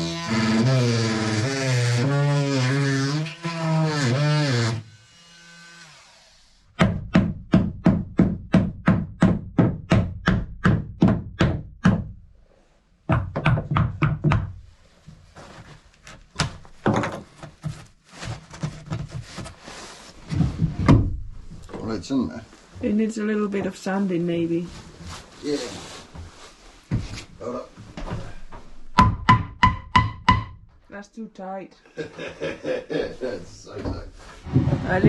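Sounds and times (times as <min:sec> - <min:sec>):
wooden knocking: 0:16.4 - 0:17.8, 0:27.9 - 0:30.8, 0:33.8 - 0:35.0.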